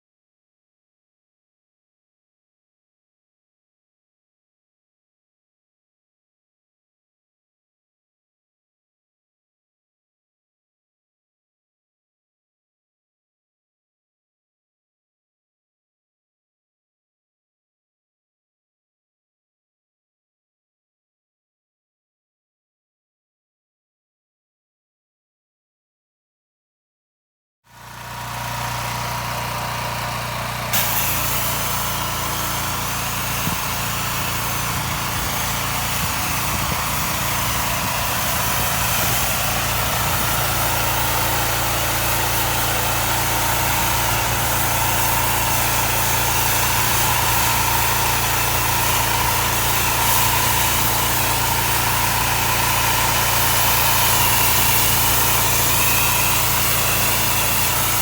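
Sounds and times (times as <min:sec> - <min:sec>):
pressure washer engine running: 0:27.8 - 0:58.0
loud hiss of water spraying: 0:30.7 - 0:58.0.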